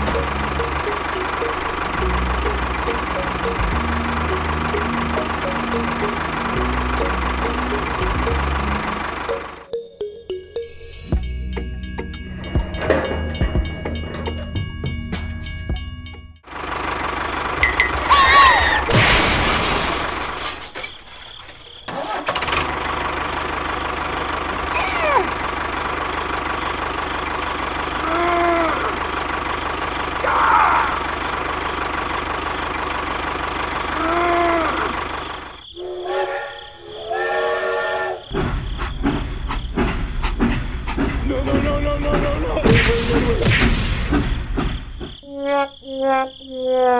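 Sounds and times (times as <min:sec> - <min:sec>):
tractor engine running: 0:00.0 - 0:36.8, 0:38.3 - 0:45.2
horn-like blasts: 0:35.8 - 0:38.3.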